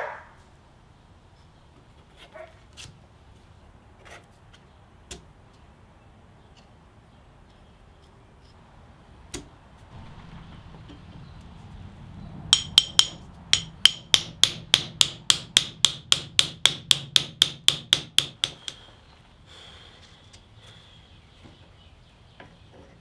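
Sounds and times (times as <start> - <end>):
hammer striking metal: 12.5 - 18.8.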